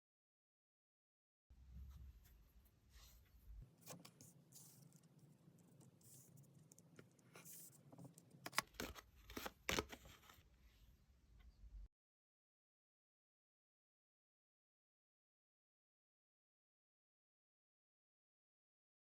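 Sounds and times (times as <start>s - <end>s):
tarot cards rustling and scraping: 3.0s - 10.5s.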